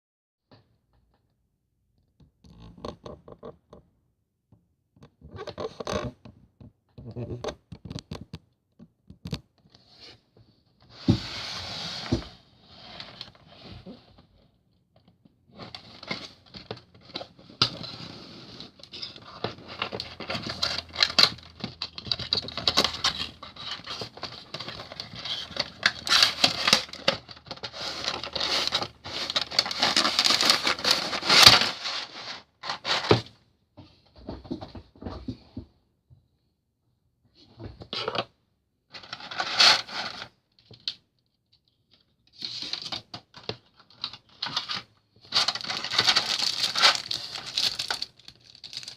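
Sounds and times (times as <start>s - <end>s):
packaging rustling and clicking: 19.0s - 33.2s, 42.6s - 48.9s.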